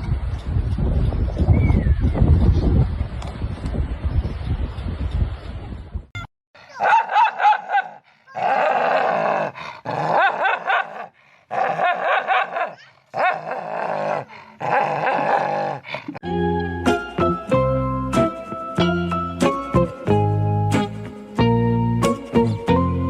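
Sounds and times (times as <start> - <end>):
dog barking: 6.7 - 8.5, 10.1 - 13.4.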